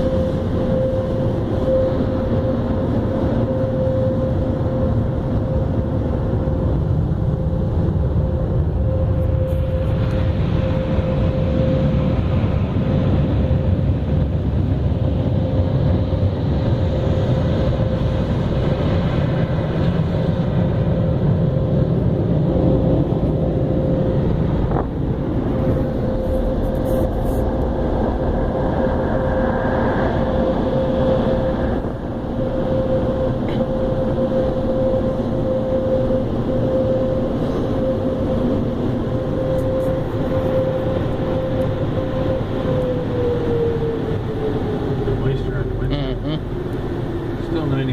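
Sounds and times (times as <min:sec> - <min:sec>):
car wash machinery rushing: 0:34.8 - 0:47.9.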